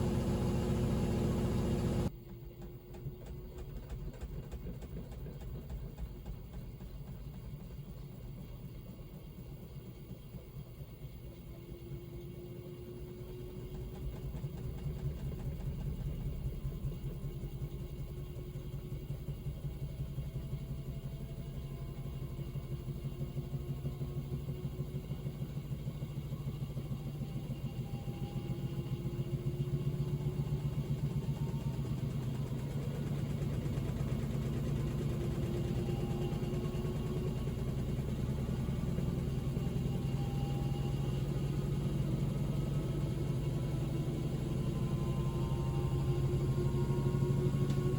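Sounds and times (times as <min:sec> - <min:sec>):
motor whine rising in pitch: 0:00.0 - 0:02.2, 0:11.3 - 0:47.9
washing machine drum spinning: 0:27.0 - 0:47.9.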